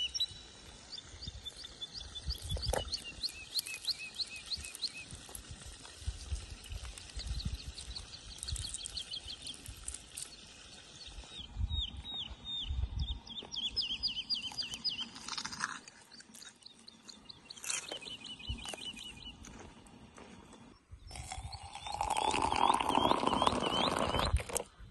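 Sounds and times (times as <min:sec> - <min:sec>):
songbird trilling: 0:00.0 - 0:05.1, 0:11.0 - 0:15.4, 0:16.3 - 0:19.4, 0:21.0 - 0:24.6.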